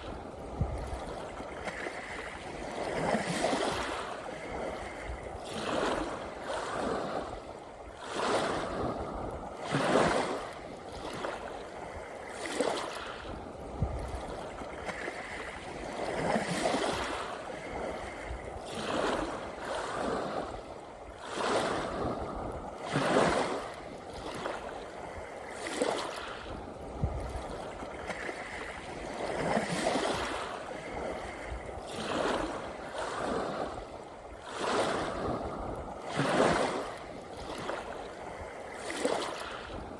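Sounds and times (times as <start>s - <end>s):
small waves washing onto shore: 0.0s - 39.9s.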